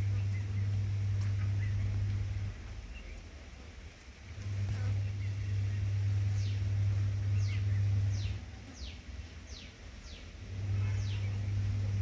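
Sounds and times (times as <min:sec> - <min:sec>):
bird chirping: 0:00.0 - 0:12.0
steady low hum: 0:00.0 - 0:12.0.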